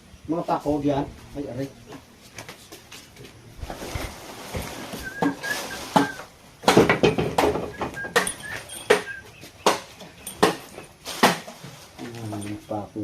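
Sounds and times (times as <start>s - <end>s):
short high chirps: 7.8s - 9.4s.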